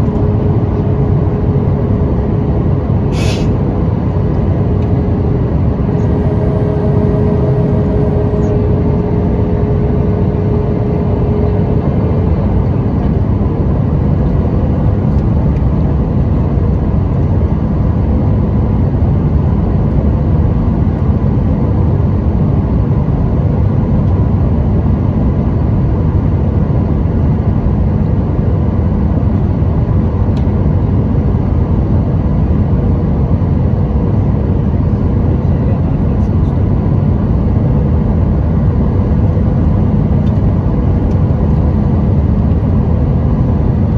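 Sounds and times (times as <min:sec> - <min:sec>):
faint steady hum: 0:00.0 - 0:16.0
jet engine cabin roar: 0:00.0 - 0:43.9.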